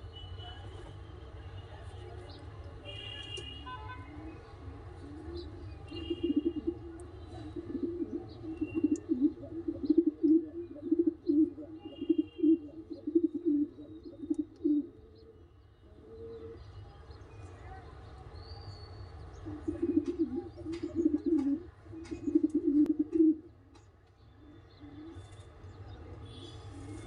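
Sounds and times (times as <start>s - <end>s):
pigeon cooing: 5.0s - 15.3s, 19.4s - 23.5s.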